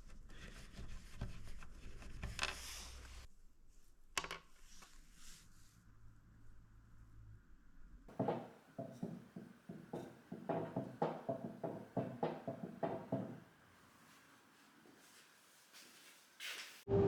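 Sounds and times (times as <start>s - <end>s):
sharp knocks on wood: 8.1s - 13.4s.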